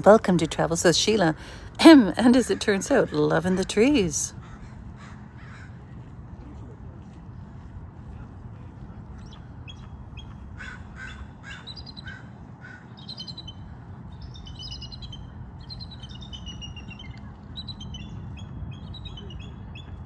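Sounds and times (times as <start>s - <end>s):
low background rumble: 0.0s - 20.0s
crow cawing: 10.6s - 12.9s.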